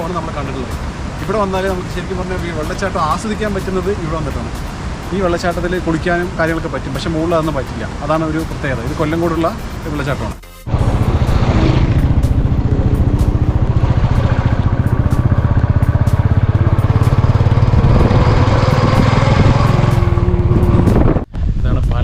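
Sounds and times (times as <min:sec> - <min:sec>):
motorcycle engine running: 0:10.7 - 0:21.2.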